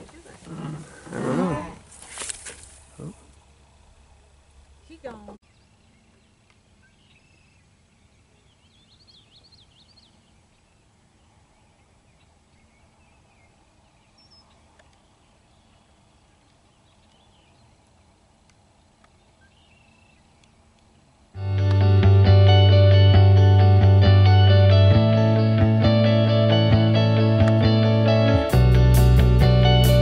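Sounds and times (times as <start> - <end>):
faint bird chirps: 18.8 - 20.6.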